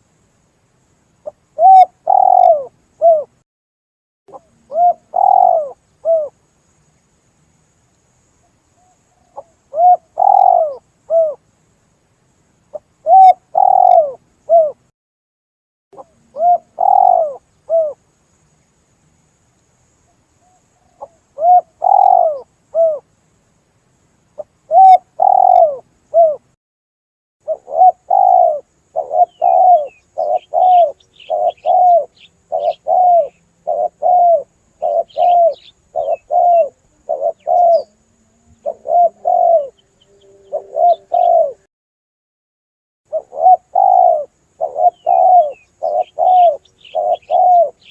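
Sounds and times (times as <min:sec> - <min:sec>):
dove cooing: 0:01.2 - 0:03.4, 0:04.3 - 0:06.4, 0:08.8 - 0:11.4, 0:12.7 - 0:14.8, 0:16.0 - 0:18.0, 0:20.8 - 0:23.0, 0:24.7 - 0:26.5, 0:27.4 - 0:41.7, 0:43.1 - 0:47.9
faint high bird chirps: 0:01.2 - 0:03.4, 0:04.3 - 0:06.4, 0:08.4 - 0:11.4, 0:12.7 - 0:14.9, 0:16.0 - 0:18.7, 0:20.0 - 0:23.1, 0:24.3 - 0:26.5, 0:27.4 - 0:41.7, 0:43.1 - 0:47.9.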